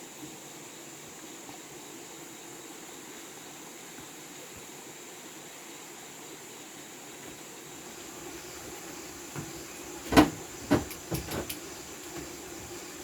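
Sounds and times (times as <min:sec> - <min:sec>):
faint steady hiss: 0:00.0 - 0:13.0
sharp knocks: 0:08.2 - 0:12.6.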